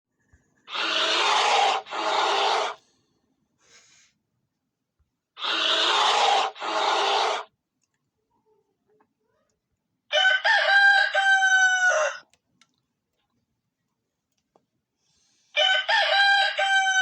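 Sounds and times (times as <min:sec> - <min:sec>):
bear calling harshly: 0:00.7 - 0:02.8, 0:05.4 - 0:07.5.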